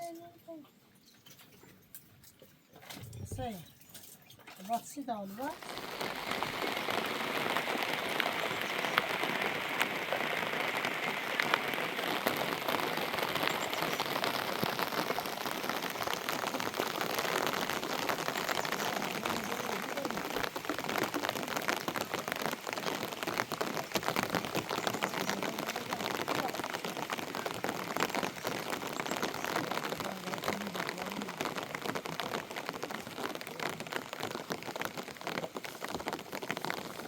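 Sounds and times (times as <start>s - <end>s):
raindrops ticking on a surface: 0.0s - 37.0s
heavy rain falling: 5.4s - 37.0s.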